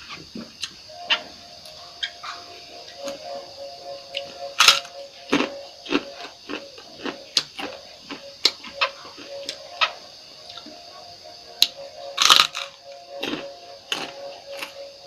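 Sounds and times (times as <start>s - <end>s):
faint steady hum: 0.0s - 15.0s
person chewing crunchy food: 4.1s - 10.8s, 11.6s - 14.8s.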